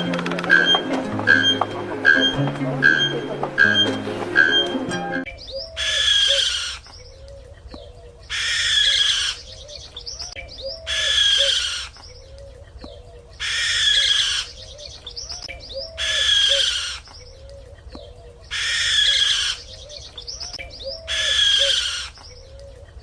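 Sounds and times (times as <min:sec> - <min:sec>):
harsh bird call: 0:00.0 - 0:12.4, 0:13.1 - 0:17.2, 0:18.4 - 0:22.4
soft low bird cooing: 0:05.4 - 0:23.0.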